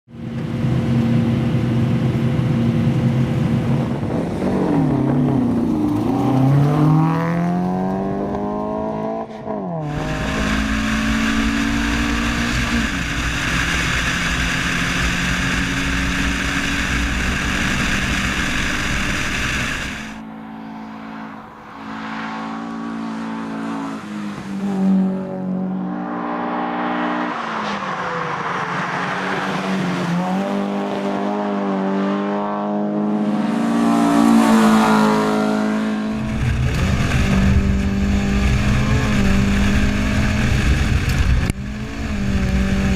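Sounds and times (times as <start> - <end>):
car engine revving through gears: 2.9 - 42.9
loud rushing noise: 9.9 - 32.0, 33.3 - 41.8.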